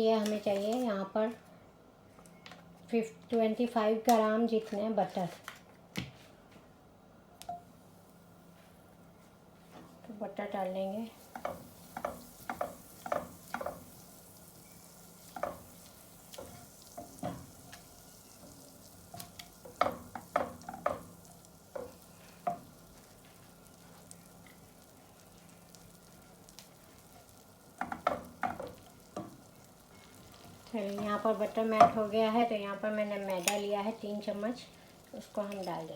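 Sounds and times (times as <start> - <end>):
butter sizzling in a frying pan: 7.6 - 9.0, 10.5 - 35.9.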